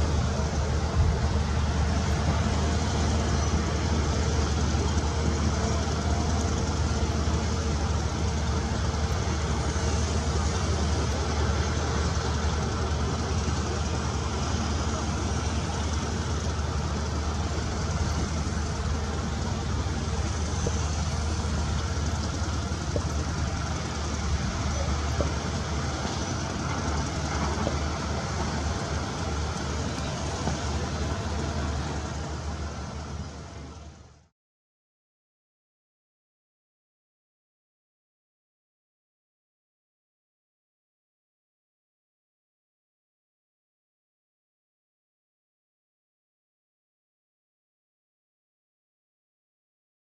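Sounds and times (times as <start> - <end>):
diesel construction machinery running: 0.0 - 34.3.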